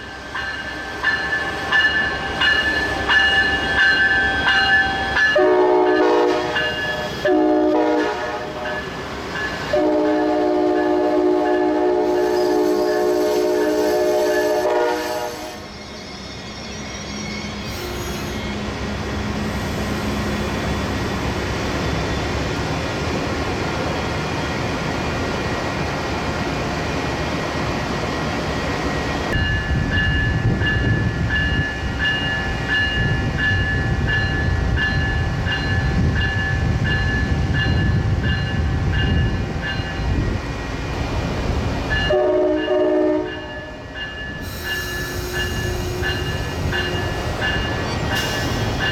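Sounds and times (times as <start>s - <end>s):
train wheels and engines rumbling: 0.0s - 48.9s
train air horn: 5.4s - 8.8s, 9.7s - 15.7s, 42.1s - 47.3s.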